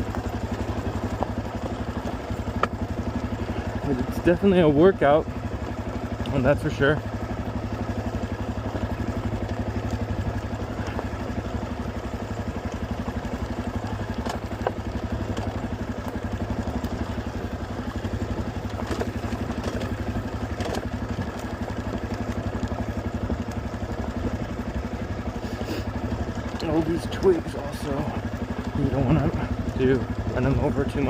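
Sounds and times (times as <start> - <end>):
bike clicks and clatter: 0.0 - 31.0
dirt bike engine running: 0.0 - 31.0.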